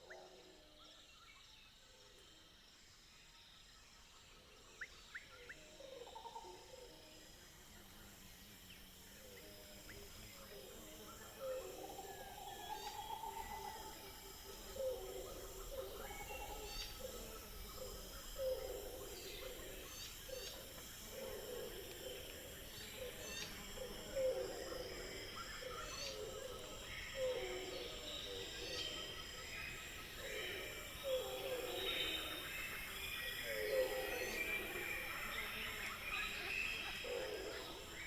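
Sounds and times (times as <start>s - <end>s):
high insect drone: 0.0s - 38.0s.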